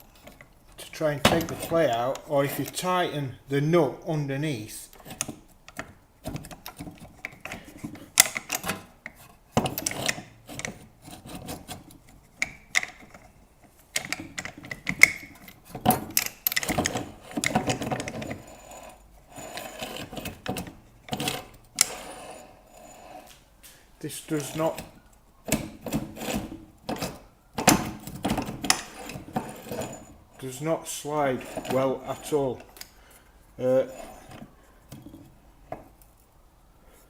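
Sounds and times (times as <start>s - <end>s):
metal scraping with clicks: 0.0s - 3.0s, 4.9s - 23.4s, 24.3s - 33.0s.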